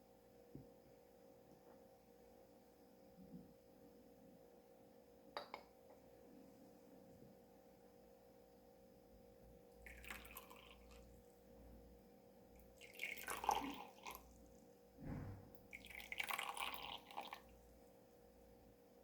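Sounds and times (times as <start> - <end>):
liquid pouring: 9.8 - 11.2, 12.6 - 14.6, 15.2 - 17.6
soft low knock: 15.0 - 15.6.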